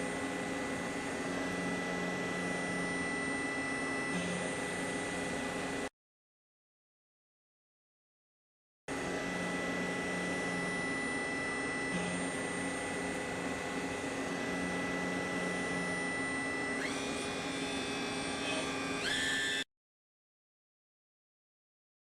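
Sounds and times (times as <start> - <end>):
lathe machine whining: 0.0 - 5.7, 9.0 - 19.6.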